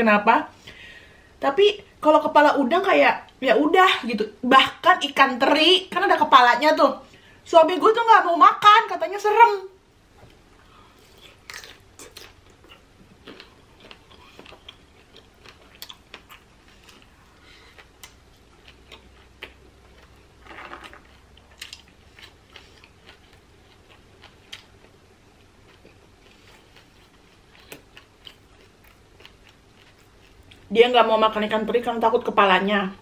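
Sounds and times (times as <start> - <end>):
person chewing shrimp: 10.6 - 30.7.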